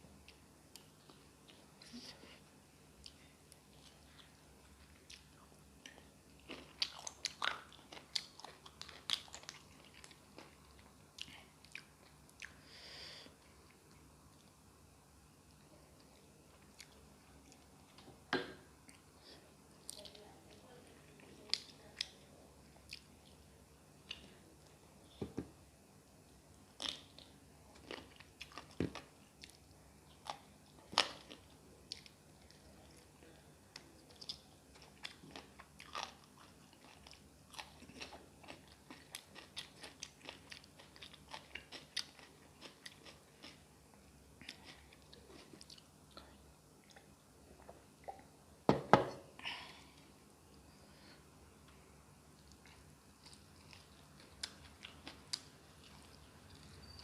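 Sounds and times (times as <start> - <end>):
person chewing food: 3.0 - 14.6, 15.5 - 18.0, 26.7 - 33.1, 33.7 - 48.3, 51.6 - 57.0
person chewing and biting food: 34.1 - 43.6.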